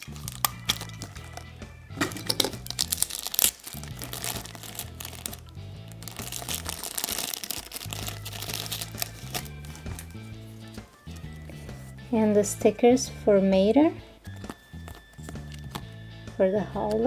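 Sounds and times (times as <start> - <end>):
toy packaging crinkling: 0.0 - 11.6, 14.2 - 15.8
background music with bass line: 0.0 - 17.0.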